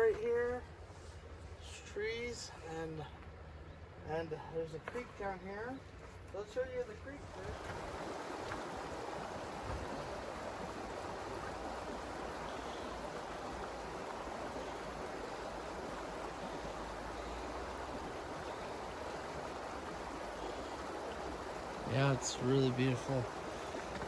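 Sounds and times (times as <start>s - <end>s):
creek water running: 6.4s - 24.0s.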